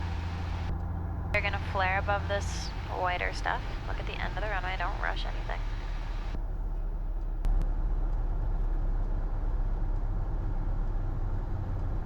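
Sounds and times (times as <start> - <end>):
aircraft engine drone: 0.0 - 12.0.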